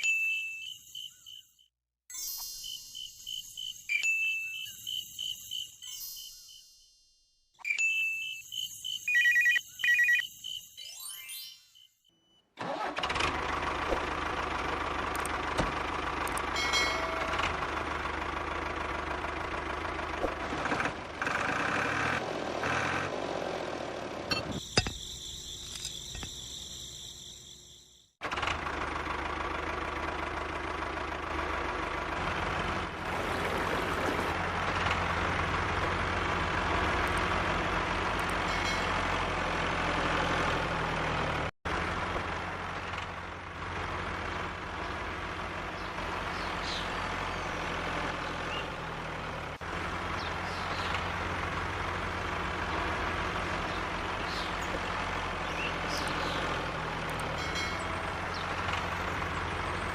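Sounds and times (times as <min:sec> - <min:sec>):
engine running low hum: 0:12.6 - 0:59.9.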